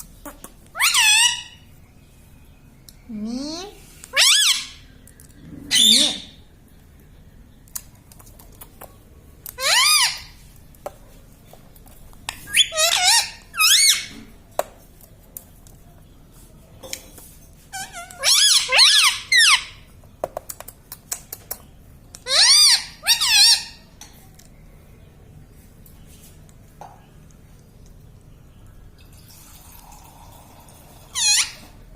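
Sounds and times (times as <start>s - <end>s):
parrot shrill squeaky calls: 0.7s - 1.6s, 4.1s - 4.8s, 5.7s - 6.4s, 9.6s - 10.4s, 12.3s - 14.1s, 17.7s - 19.9s, 22.2s - 23.9s, 31.1s - 31.7s.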